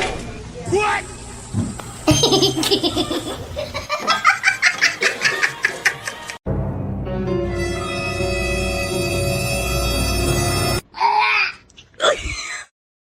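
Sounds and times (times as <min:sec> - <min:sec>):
person laughing: 0:02.1 - 0:06.4
music with long held notes: 0:06.5 - 0:10.8.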